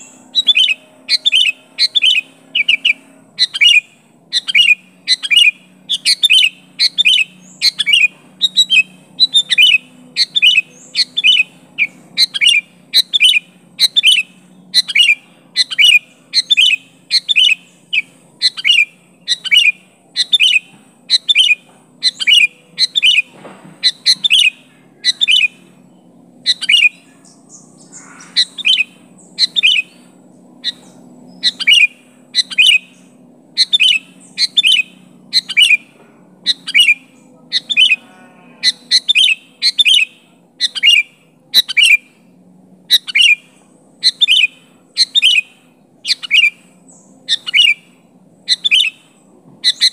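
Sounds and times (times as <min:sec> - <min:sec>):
bulbul sharp calls: 0:00.0 - 0:49.9.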